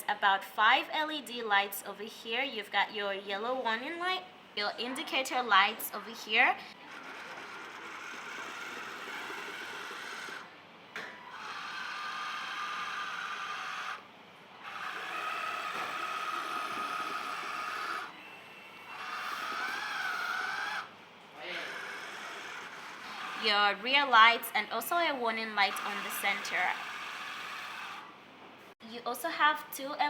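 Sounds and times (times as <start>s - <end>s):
electric motor whine: 6.7s - 14.0s, 14.6s - 20.9s.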